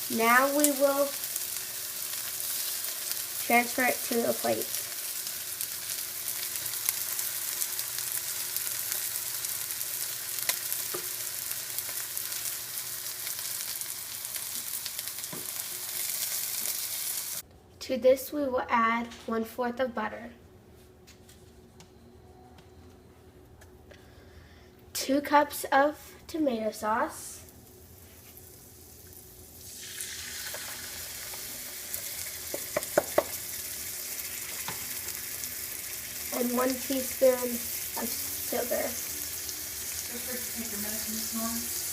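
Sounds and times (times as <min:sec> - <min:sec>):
food sizzling in a pan: 0:00.0 - 0:17.4, 0:27.1 - 0:41.9
sharp knocks against pan: 0:32.5 - 0:33.3.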